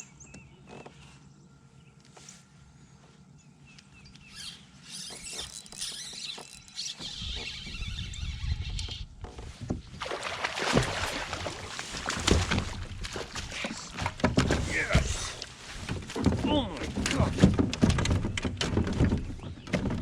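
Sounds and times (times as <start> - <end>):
water splashing: 9.9 - 17.3
fish thrashing at water surface: 9.9 - 18.9
knocks against a kayak: 12.0 - 20.0.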